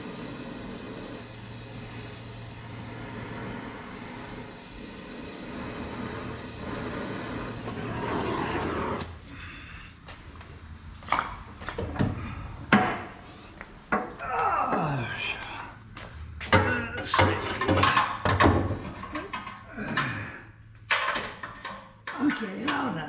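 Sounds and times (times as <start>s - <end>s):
gas torch hissing: 0.0s - 10.7s.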